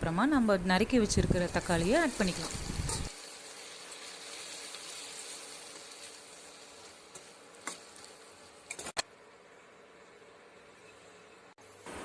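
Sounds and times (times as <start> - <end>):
onions sizzling in oil: 0.3 - 9.0.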